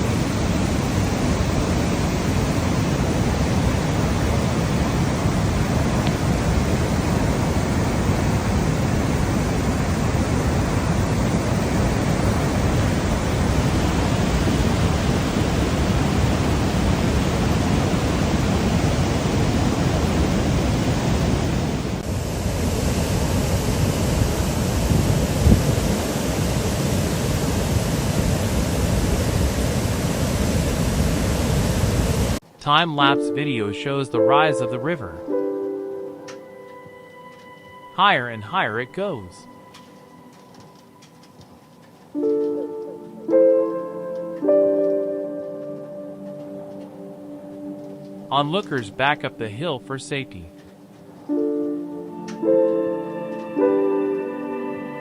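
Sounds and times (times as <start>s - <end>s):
floodwater rushing: 0.0s - 35.0s.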